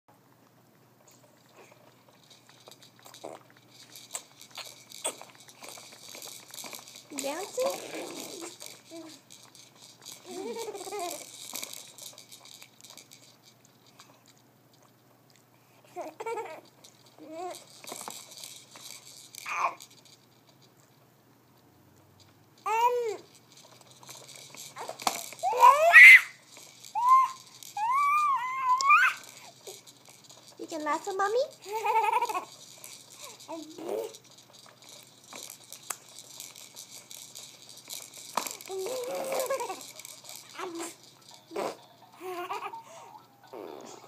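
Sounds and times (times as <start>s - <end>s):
baby squeaky vocal sounds: 22.6s - 23.2s, 24.8s - 26.4s, 27.0s - 29.5s, 38.6s - 44.0s.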